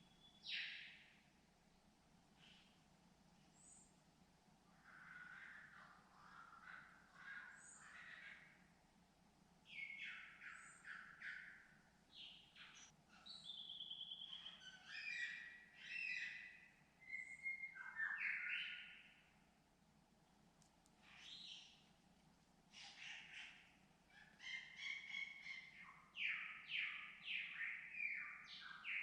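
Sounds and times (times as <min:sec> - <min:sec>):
birds calling: 0:09.7 - 0:19.1, 0:22.7 - 0:29.0.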